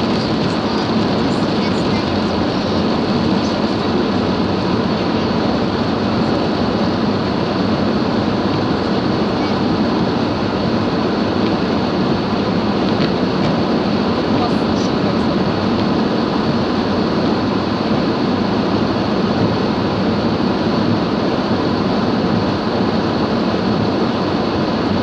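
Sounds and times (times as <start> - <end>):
rain beating on car: 0.0 - 9.7.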